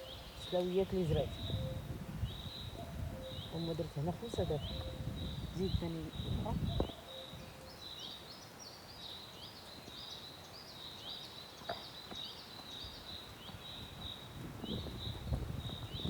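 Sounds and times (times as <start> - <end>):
small birds chirping: 0.0 - 16.0
low rustling rumble: 13.8 - 16.0.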